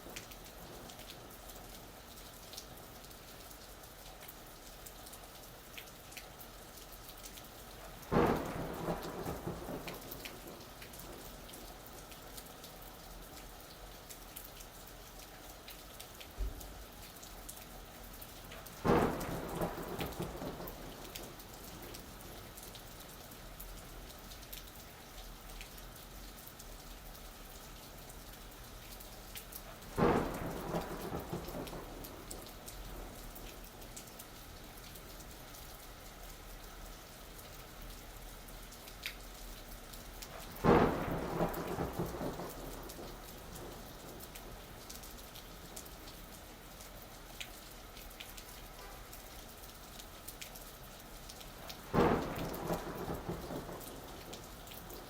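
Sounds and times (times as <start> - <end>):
steady rain falling: 0.0 - 55.0
thunder cracks rumbling: 8.1 - 11.2, 18.8 - 22.0, 29.9 - 33.5, 40.5 - 44.2, 51.8 - 55.0.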